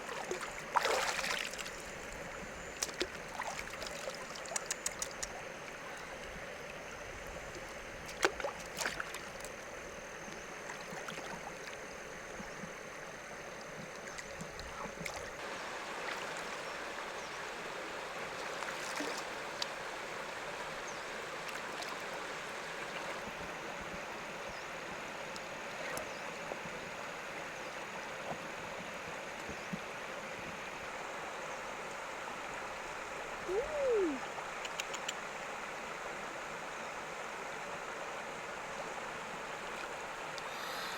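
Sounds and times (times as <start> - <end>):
river water gurgling: 0.0 - 40.9
small clicks and splashes: 2.7 - 5.4, 7.6 - 9.6, 13.6 - 15.4.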